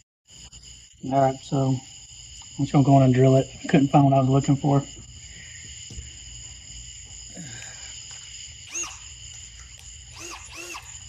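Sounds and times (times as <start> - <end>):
insects chirring: 0.2 - 11.0
short squeaky calls: 8.6 - 9.2, 10.0 - 11.0.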